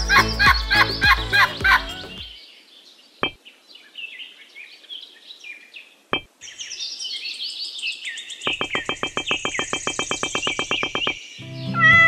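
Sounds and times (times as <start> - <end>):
birds chirping: 0.0 - 12.0
rapid pulsing trill: 8.5 - 11.2
sharp click: 8.5 - 11.2.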